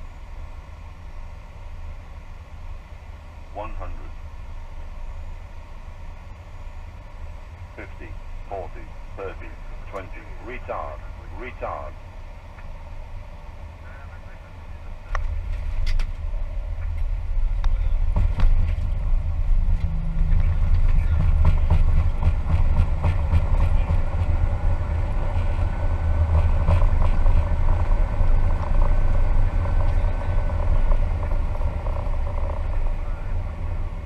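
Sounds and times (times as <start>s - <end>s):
aircraft engines rumbling: 0.0s - 34.0s
faint steady whine: 0.0s - 34.0s
wheels rolling on runway: 15.1s - 34.0s.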